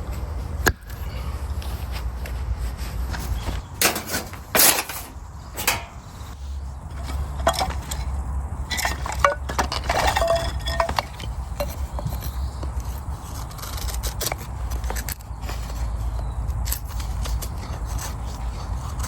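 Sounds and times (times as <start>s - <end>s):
metal or crockery clinking: 3.8s - 6.1s, 8.7s - 11.8s.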